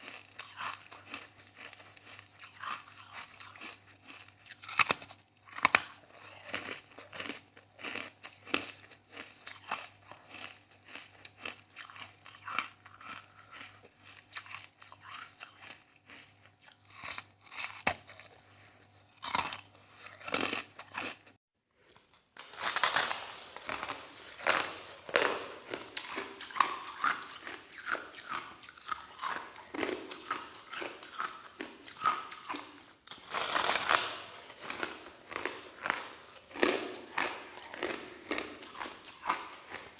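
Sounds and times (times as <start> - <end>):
person crunching ice: 0.0 - 13.6, 21.9 - 39.9.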